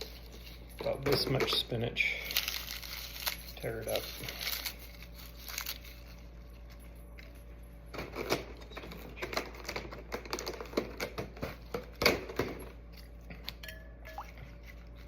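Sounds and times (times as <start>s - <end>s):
spinach leaves tearing: 2.3s - 6.2s.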